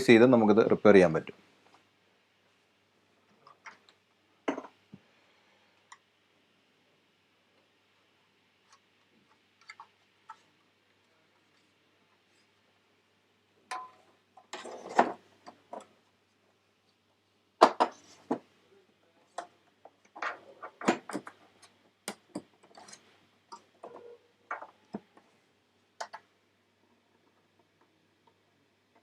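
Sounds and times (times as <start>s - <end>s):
hard parts clicking and clattering: 19.3s - 25.2s.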